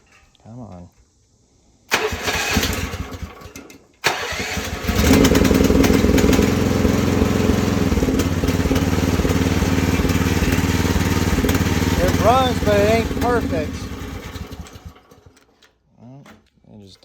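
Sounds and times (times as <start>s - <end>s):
small gasoline engine starting: 1.9s - 15.6s.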